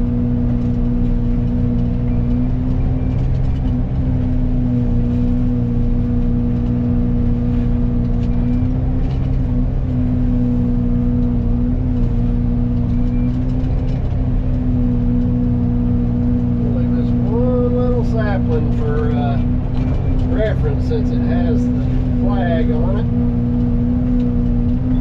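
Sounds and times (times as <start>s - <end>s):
excavator engine and mulcher humming: 0.0s - 25.0s.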